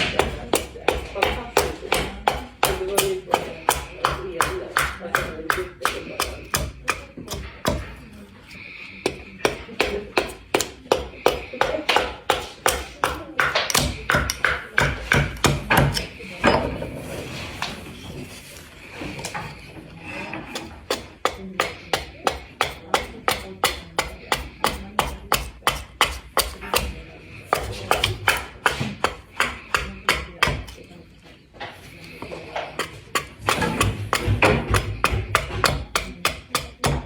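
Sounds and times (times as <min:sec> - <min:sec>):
axe chopping wood: 0:00.0 - 0:08.0, 0:09.0 - 0:16.1, 0:20.9 - 0:30.8, 0:32.7 - 0:37.0.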